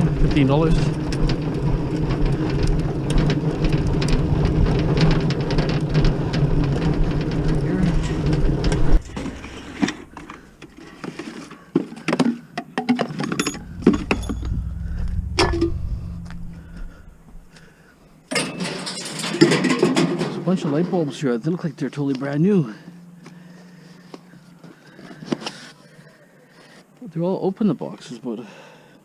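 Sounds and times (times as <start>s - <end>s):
vehicle engine running: 7.2s - 10.8s, 13.4s - 17.6s
low hum: 9.0s - 10.8s, 13.4s - 17.9s.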